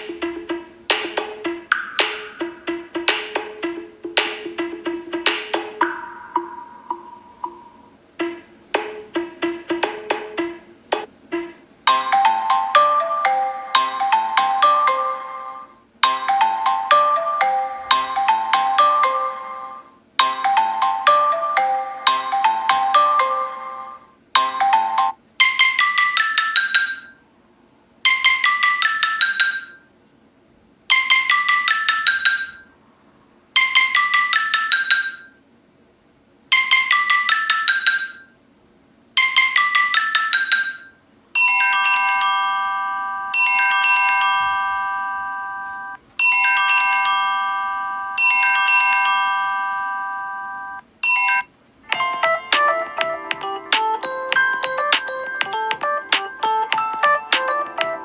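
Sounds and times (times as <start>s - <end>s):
ringtone chiming chords: 0.0s - 10.4s, 11.3s - 27.2s, 30.9s - 32.7s, 39.2s - 58.0s
phone ringtone bright notes: 5.8s - 9.0s, 11.4s - 27.2s, 30.9s - 32.7s, 39.2s - 58.0s.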